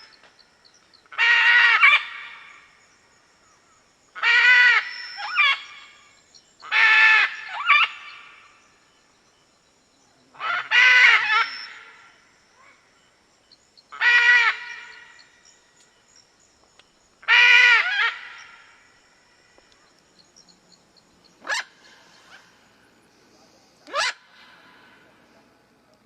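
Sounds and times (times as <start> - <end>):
large bird giving harsh calls: 1.1 - 2.6, 4.2 - 6.0, 6.6 - 8.5, 10.4 - 12.1, 13.9 - 15.3, 17.2 - 18.8, 21.4 - 22.7, 23.8 - 25.0.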